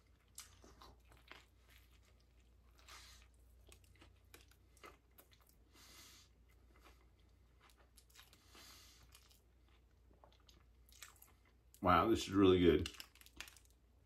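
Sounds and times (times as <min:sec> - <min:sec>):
person chewing sandwich: 0:00.0 - 0:11.8, 0:12.8 - 0:14.0.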